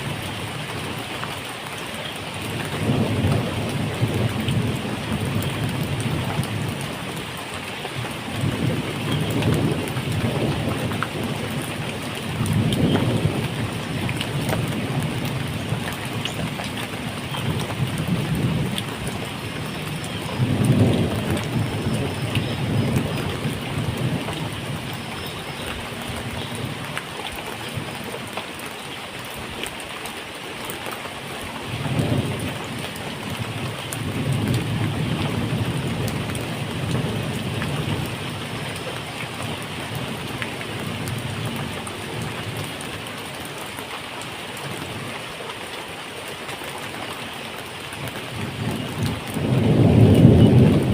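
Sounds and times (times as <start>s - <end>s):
rain falling: 0.0s - 50.9s
thunder rumbling: 2.4s - 7.2s, 8.0s - 27.0s, 31.7s - 42.8s, 48.2s - 50.9s.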